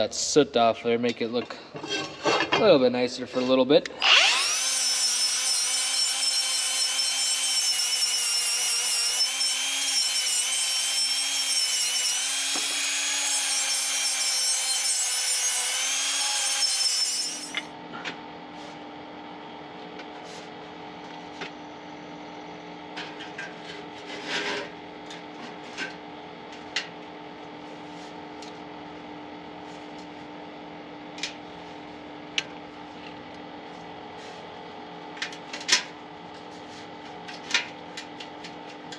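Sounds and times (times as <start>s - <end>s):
power tool wire brush scraping: 4.0s - 17.7s.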